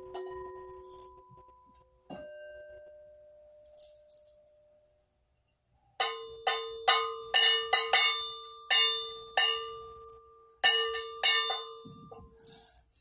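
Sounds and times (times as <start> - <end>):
bronze bell struck: 0.0 - 3.9.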